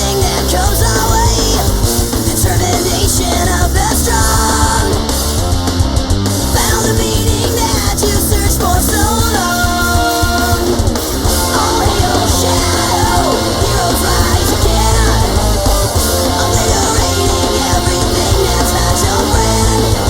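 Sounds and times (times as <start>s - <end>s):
sped-up hard rock song: 0.0s - 20.0s.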